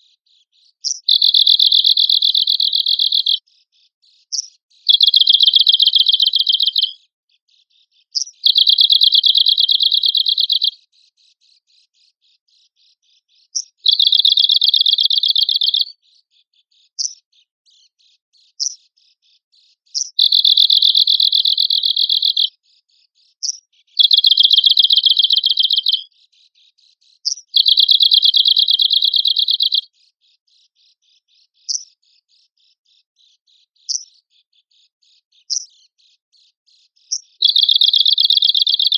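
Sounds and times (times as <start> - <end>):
bird high dry trill: 0.9 - 3.4, 4.9 - 7.0, 8.2 - 10.8, 13.9 - 15.9, 20.0 - 22.5, 23.4 - 26.1, 27.3 - 29.9, 37.1 - 38.9
sharp bird call notes: 0.9 - 3.4, 4.9 - 6.9, 24.0 - 26.0, 37.4 - 38.9.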